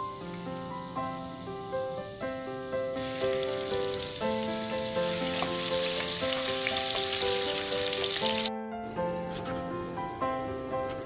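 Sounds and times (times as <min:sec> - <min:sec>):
garlic and onion frying in oil: 0:00.0 - 0:08.5
background music: 0:00.0 - 0:11.0.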